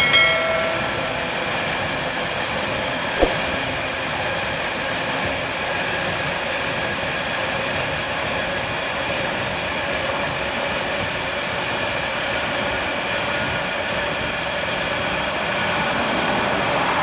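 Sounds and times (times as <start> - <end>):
short chime: 0.0 - 1.7.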